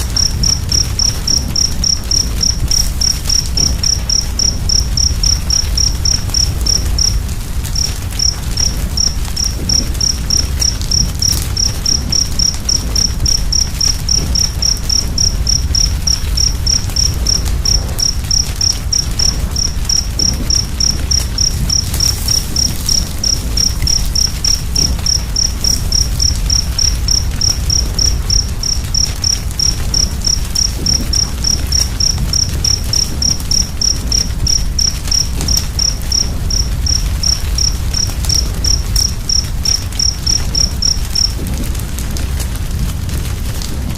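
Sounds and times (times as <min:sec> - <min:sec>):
cricket chirping: 0:00.0 - 0:43.9
fire rumbling and crackling: 0:00.0 - 0:43.9.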